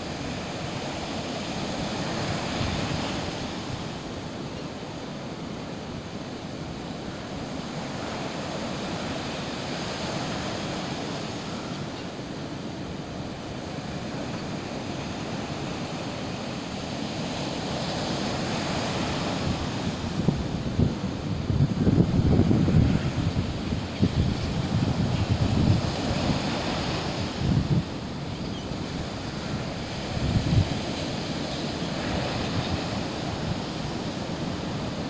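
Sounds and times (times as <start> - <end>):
sea waves surf: 0.0 - 35.0
wind buffeting microphone: 17.8 - 35.0.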